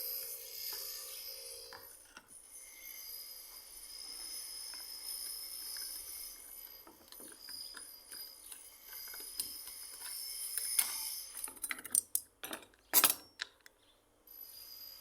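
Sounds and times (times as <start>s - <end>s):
metal parts clicking and tapping: 4.7s - 13.7s.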